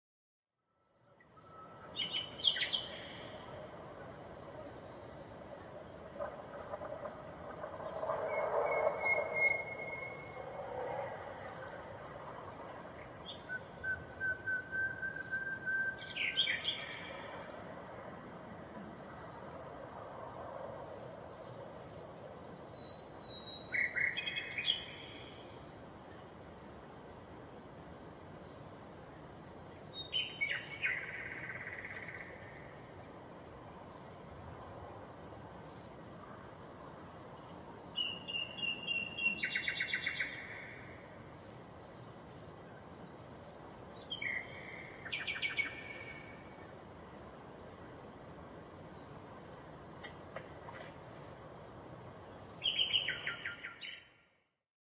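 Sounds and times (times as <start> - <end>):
faint outdoor background: 0.5 - 54.7
songbird singing whistled notes: 1.1 - 6.0, 7.9 - 10.5, 11.1 - 17.7, 21.7 - 25.6, 28.1 - 34.2, 37.8 - 41.6, 43.3 - 48.0, 52.1 - 54.4.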